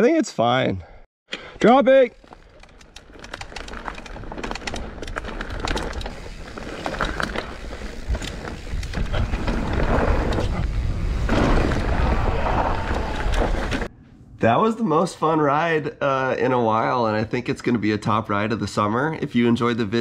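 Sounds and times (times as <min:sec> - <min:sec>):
bike rattling and clicking: 0:01.7 - 0:12.2
bike tyre noise on dirt: 0:02.1 - 0:13.9.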